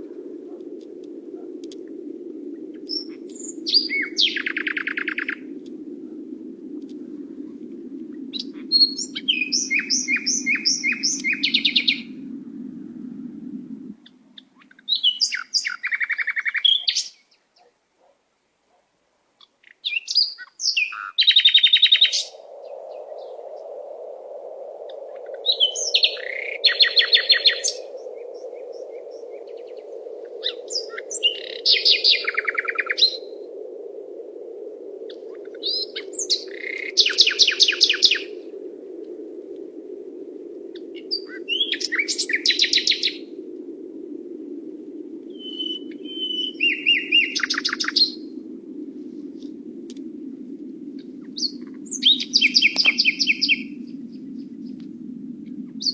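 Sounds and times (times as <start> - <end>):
songbird singing trilled phrases: 2.8 - 5.4, 8.4 - 12.1, 14.4 - 17.4, 19.4 - 22.3, 28.6 - 33.2, 40.9 - 43.2, 45.4 - 48.2, 51.4 - 53.8
low rushing noise: 22.3 - 55.8.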